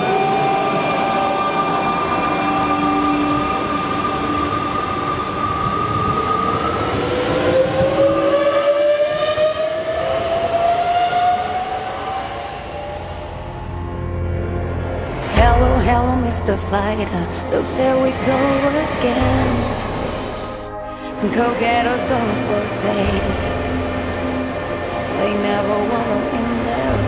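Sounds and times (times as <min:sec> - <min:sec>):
train wheels rumbling on rail: 0:00.0 - 0:20.7.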